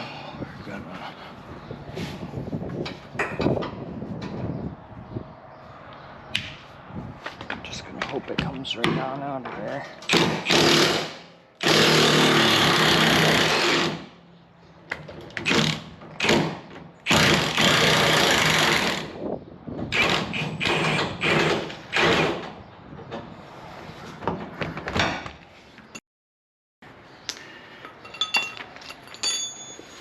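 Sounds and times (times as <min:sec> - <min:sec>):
impact wrench bursts: 0:10.1 - 0:14.1.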